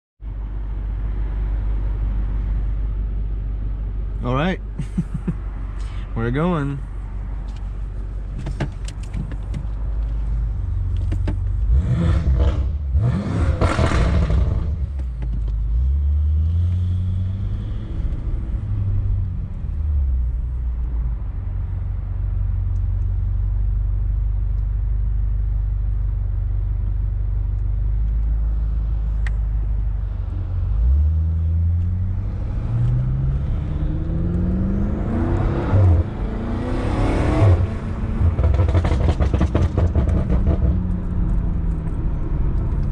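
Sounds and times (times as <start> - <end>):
car engine accelerating: 8.3 - 24.7, 25.5 - 42.9.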